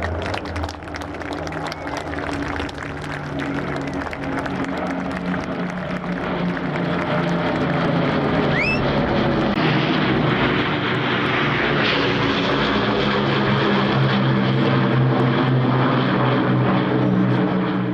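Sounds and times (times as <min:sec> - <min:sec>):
propeller plane engines droning: 0:00.0 - 0:17.9.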